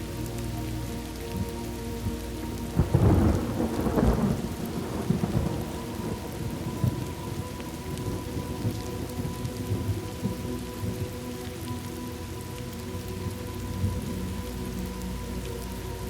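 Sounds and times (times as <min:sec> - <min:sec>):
steady rain: 0:00.0 - 0:16.0
thunder rumbling: 0:01.4 - 0:11.8.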